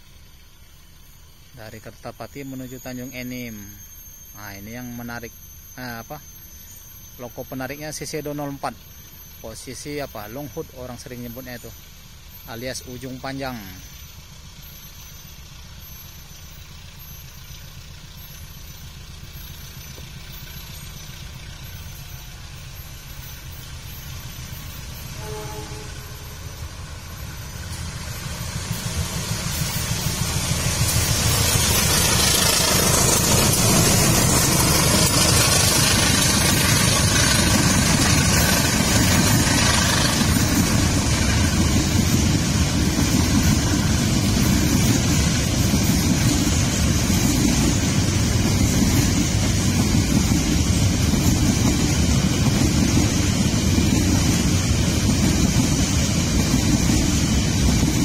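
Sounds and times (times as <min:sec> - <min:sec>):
diesel locomotive engine drone: 0:00.0 - 0:58.0
wagon wheels rumbling on rails: 0:12.7 - 0:58.0.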